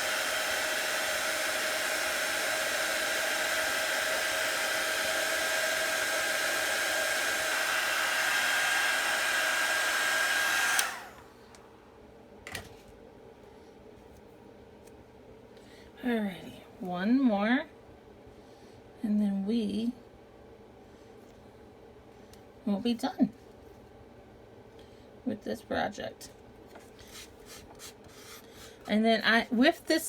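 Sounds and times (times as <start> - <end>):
handheld dryer blowing: 0.0 - 11.7.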